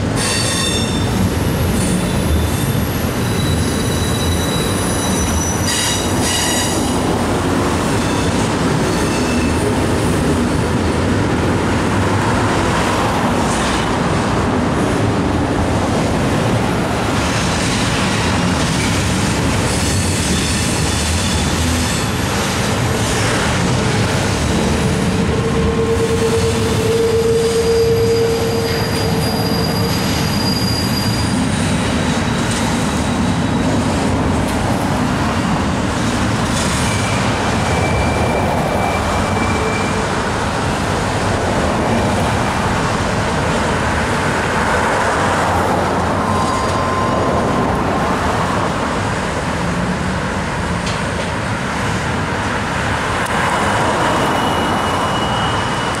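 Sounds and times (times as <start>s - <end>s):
train wheels rumbling on rail: 0.0s - 56.0s
wheel squeals: 1.7s - 6.9s, 25.4s - 33.8s, 54.0s - 56.0s.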